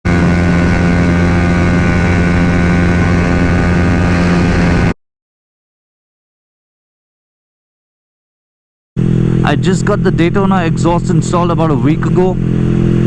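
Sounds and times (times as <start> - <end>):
motorcycle engine at steady revs: 0.0 - 5.0, 9.0 - 13.0
wind and road noise: 0.0 - 5.0, 9.0 - 13.0.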